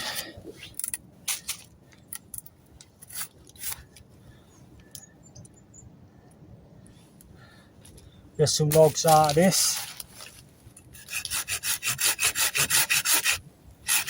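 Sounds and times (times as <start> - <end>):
faint rustling: 6.8 - 11.0.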